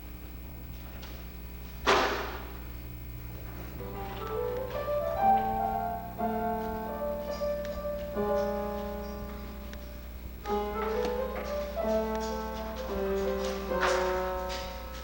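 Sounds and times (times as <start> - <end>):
steady low hum: 0.0 - 15.0
keyboard playing slow chords: 3.1 - 15.0.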